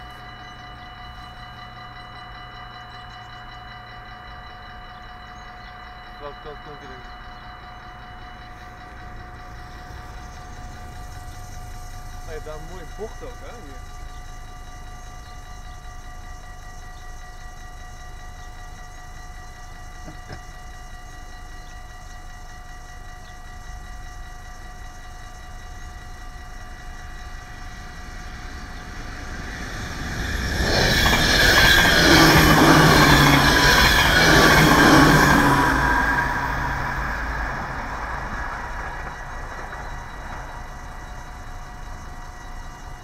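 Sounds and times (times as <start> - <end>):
level crossing bells ringing: 0.0 - 43.0
train passing: 0.0 - 43.0.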